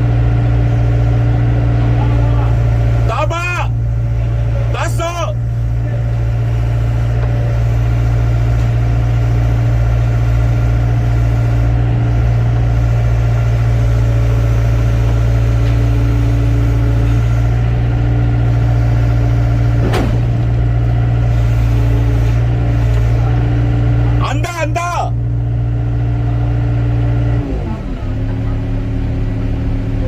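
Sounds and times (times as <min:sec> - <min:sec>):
diesel engine running: 0:00.0 - 0:30.0
sharp knock: 0:19.8 - 0:20.4.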